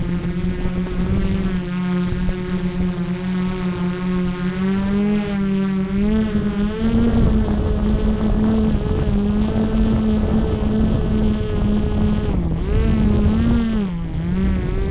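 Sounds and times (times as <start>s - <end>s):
drone propellers buzzing: 0.0s - 14.9s.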